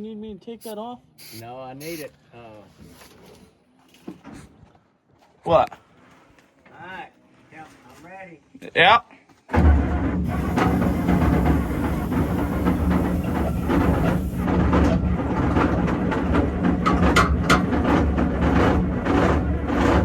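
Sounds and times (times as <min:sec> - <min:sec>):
electric starter cranking diesel engine: 0:00.6 - 0:02.1, 0:09.6 - 0:20.0
engine trying to fire: 0:09.6 - 0:20.0.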